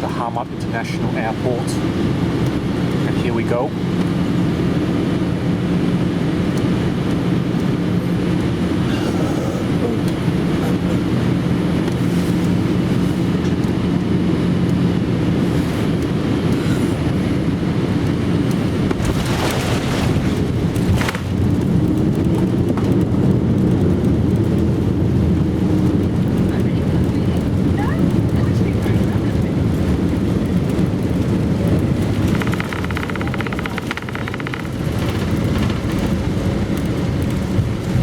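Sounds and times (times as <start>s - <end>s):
aircraft cabin engine rumble: 0.0s - 38.0s.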